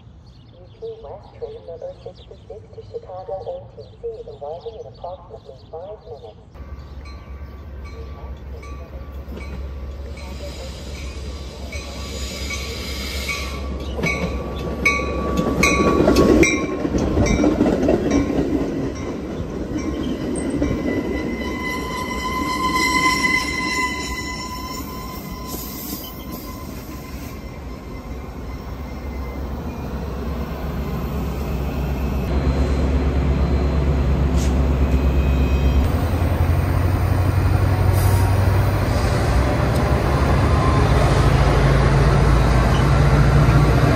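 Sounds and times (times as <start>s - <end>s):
train wheels squealing: 9.4s - 16.0s, 19.8s - 30.0s, 33.4s - 36.2s.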